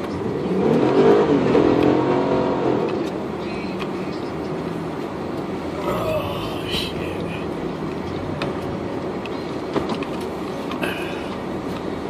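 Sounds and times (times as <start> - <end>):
vehicle engine revving: 0.0 - 9.1
road and cabin rumble: 0.0 - 12.0.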